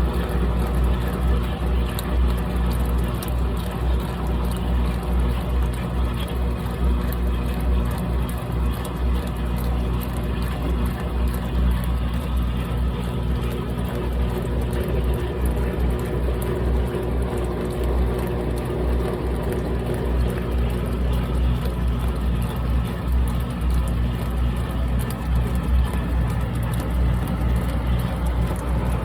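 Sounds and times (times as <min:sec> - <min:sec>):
washing machine running: 0:00.0 - 0:29.0.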